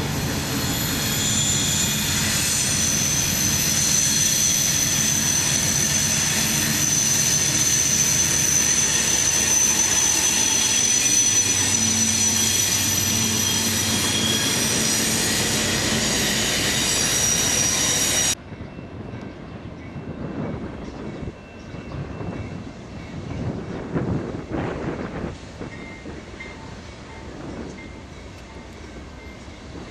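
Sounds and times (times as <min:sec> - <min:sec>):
train wheels squealing: 0:00.0 - 0:23.6
freight train rumbling drone: 0:00.0 - 0:29.9.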